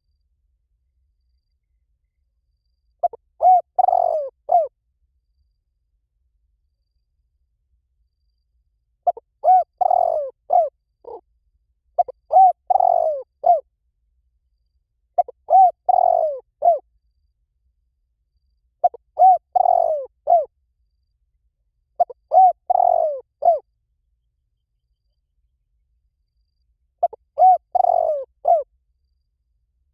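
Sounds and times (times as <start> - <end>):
dove cooing: 3.0 - 4.7, 9.1 - 11.2, 12.0 - 13.6, 15.2 - 16.8, 18.8 - 20.5, 22.0 - 23.6, 27.0 - 28.7.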